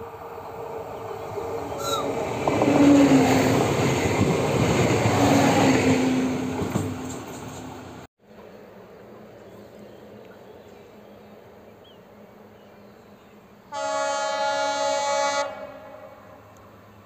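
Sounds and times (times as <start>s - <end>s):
train wheels on rails: 0.0s - 10.8s.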